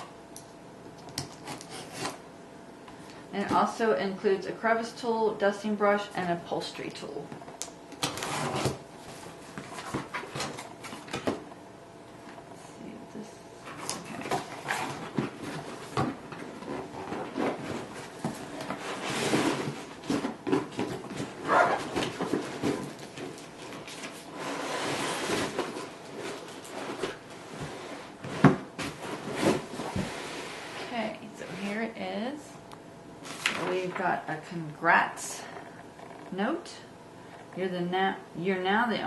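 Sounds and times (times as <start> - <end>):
cardboard box rustling and scraping: 14.0 - 30.8.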